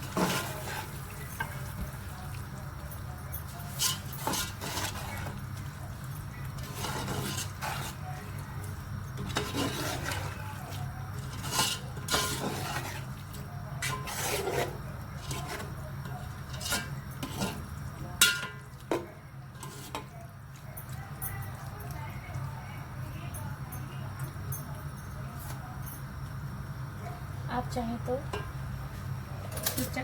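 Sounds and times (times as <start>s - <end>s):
spoon scraping metal pot: 0.0s - 1.8s, 3.6s - 5.7s, 6.4s - 8.2s, 9.2s - 18.6s, 19.5s - 20.1s
spoon clinking against pot: 16.4s - 20.1s.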